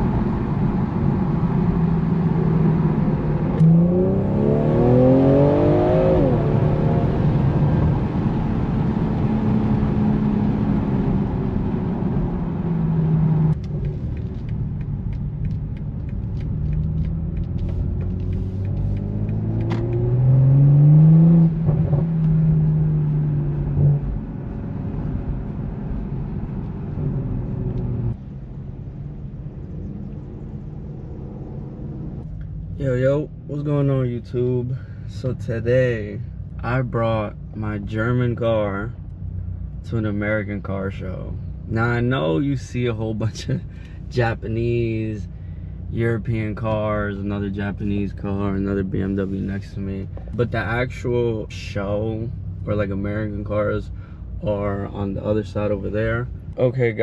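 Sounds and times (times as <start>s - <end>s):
road noise: 0.0s - 57.0s
car engine accelerating hard: 0.2s - 14.7s, 15.9s - 32.5s.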